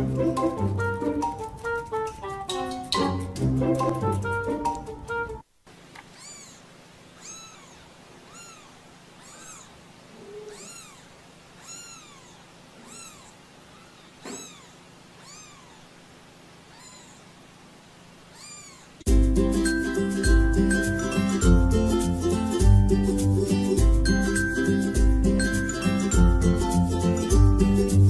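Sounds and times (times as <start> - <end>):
kittens mewing: 6.0 - 17.4, 18.2 - 19.1.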